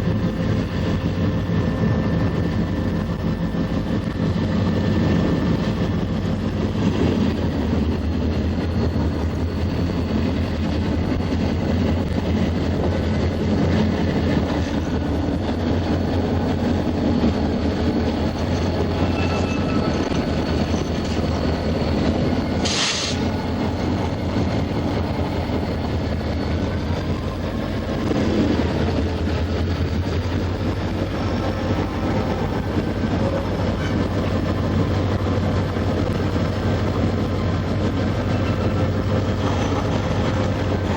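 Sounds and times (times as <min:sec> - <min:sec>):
freight train rumble: 0:00.0 - 0:40.9
wheels clattering on rails: 0:00.0 - 0:40.9
short hiss: 0:22.6 - 0:23.2.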